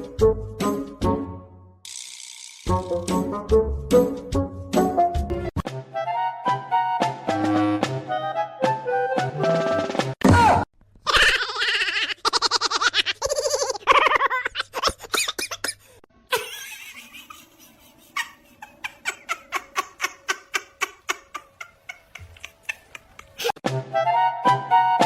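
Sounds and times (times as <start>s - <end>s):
person laughing: 11.1s - 23.6s.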